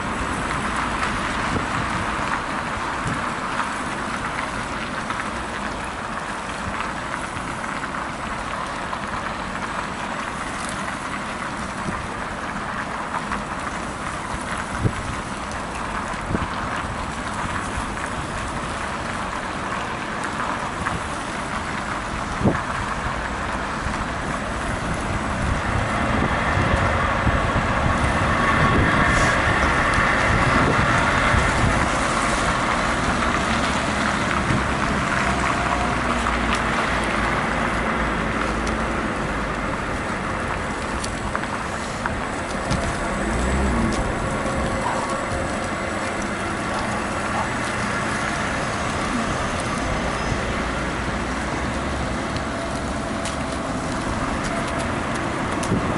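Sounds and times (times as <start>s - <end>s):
road and traffic noise: 0.0s - 55.9s
wind rushing over microphone: 22.1s - 35.2s, 39.8s - 55.9s.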